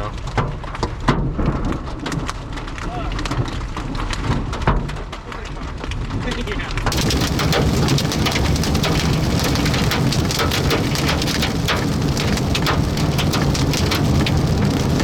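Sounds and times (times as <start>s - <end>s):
heavy rain on a vehicle: 0.0s - 15.0s
hailstone strikes: 6.9s - 15.0s.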